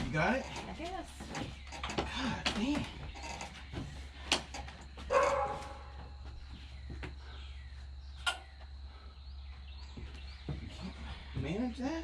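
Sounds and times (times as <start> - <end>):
dog barking: 5.1 - 6.1.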